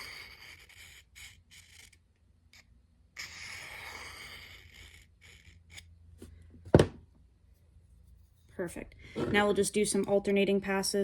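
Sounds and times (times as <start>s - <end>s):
knife scraping on whetstone: 0.0s - 2.0s, 3.2s - 5.9s.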